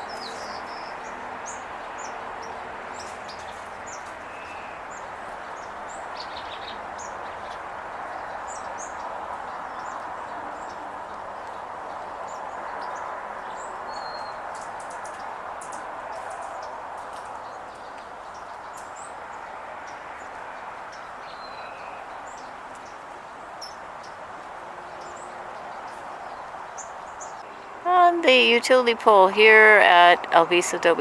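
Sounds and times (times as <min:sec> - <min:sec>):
sparrows chirping: 0:00.0 - 0:31.0
steady background noise: 0:26.0 - 0:31.0.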